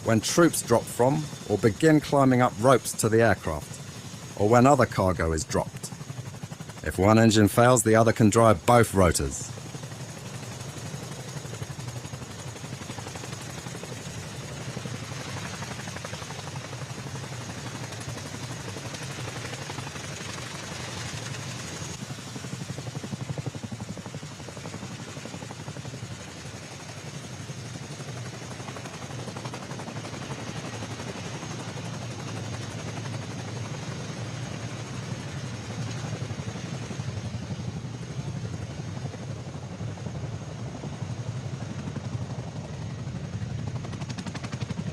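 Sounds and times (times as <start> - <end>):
helicopter rotor and engine noise: 0.0 - 44.9.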